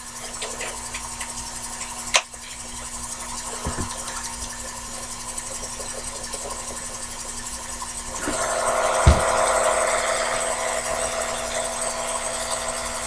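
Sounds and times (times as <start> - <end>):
lathe motor humming: 7.0 - 13.0.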